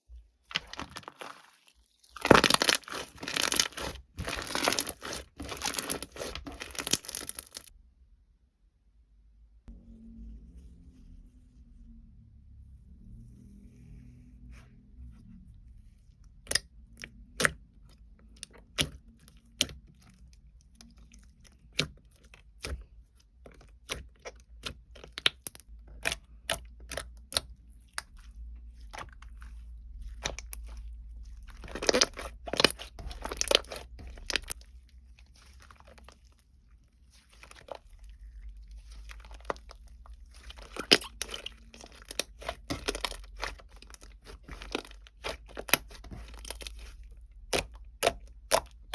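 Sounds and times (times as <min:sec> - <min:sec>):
crinkling rustle: 0:00.4 - 0:07.7.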